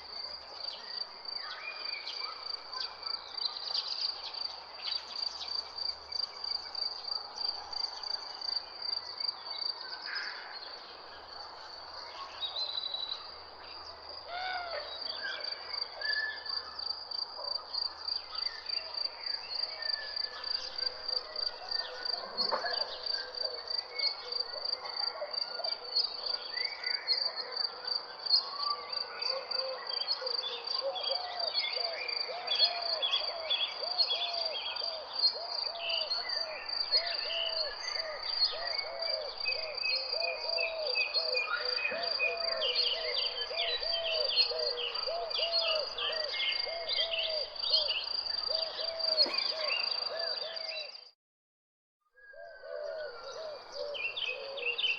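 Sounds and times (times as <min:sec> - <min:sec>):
birds calling and chirping: 0:19.7 - 0:24.3, 0:32.4 - 0:51.0.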